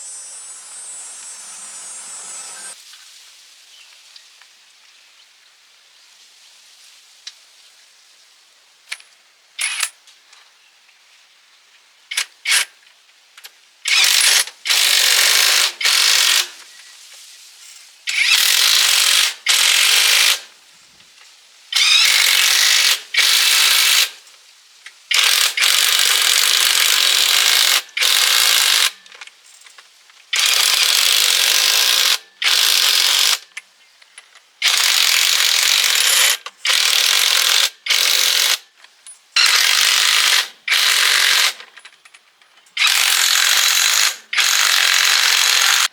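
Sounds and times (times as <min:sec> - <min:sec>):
power tool running in bursts: 0:00.0 - 0:02.8, 0:42.8 - 0:45.9.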